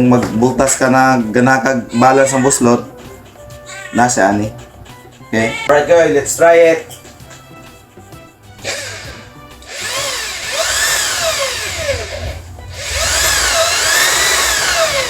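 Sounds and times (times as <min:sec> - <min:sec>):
electric drill motor whine: 0:08.6 - 0:15.0.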